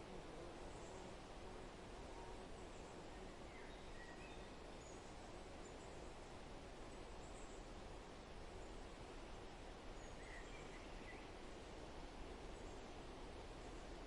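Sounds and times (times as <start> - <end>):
faint outdoor background noise: 0.0 - 14.0
faint bird chirps: 2.0 - 6.3, 6.9 - 7.8, 9.9 - 11.7.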